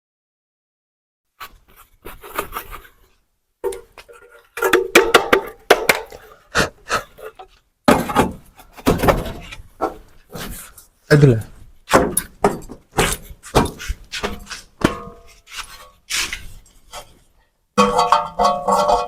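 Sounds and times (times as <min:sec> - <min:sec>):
knocks and clattering: 0:03.6 - 0:06.3, 0:07.4 - 0:10.6, 0:11.9 - 0:16.5, 0:17.8 - 0:19.0.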